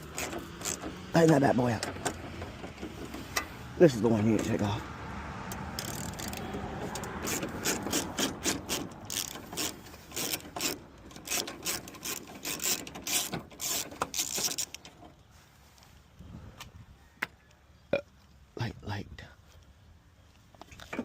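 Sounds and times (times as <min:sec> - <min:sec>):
socket ratchet clicking: 0:05.5 - 0:14.8.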